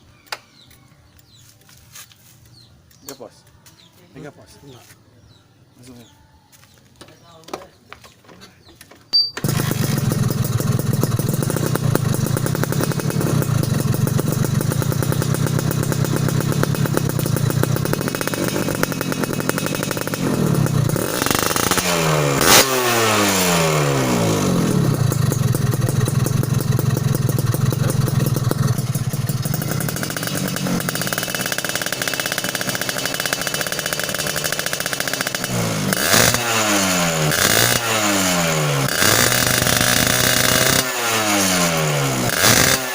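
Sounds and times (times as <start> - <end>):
motorcycle engine idling and revving: 8.9 - 42.9.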